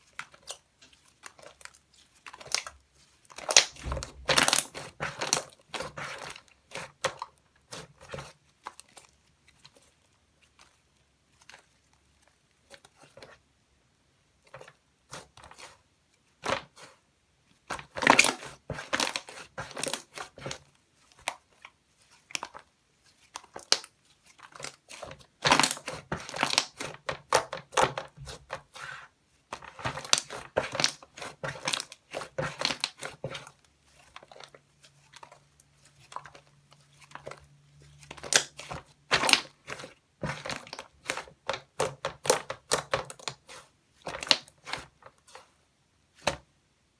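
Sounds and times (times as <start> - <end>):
slime crackling and popping: 1.3 - 8.0, 23.2 - 28.5, 38.0 - 43.5.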